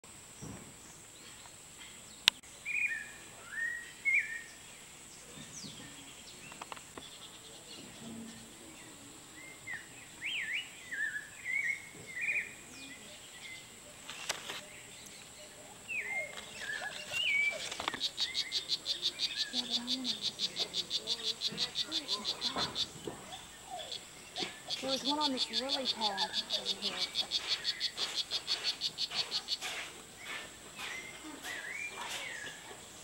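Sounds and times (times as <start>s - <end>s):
steady high-pitched hiss: 0.0s - 33.0s
whistled bird chirps: 2.7s - 4.5s, 30.2s - 32.6s.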